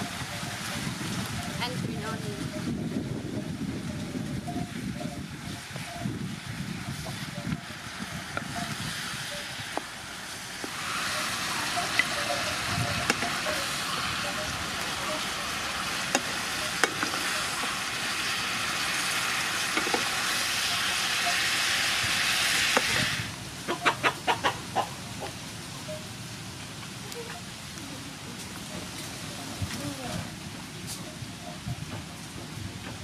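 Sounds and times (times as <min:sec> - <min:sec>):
food sizzling in hot oil: 0:00.0 - 0:24.8.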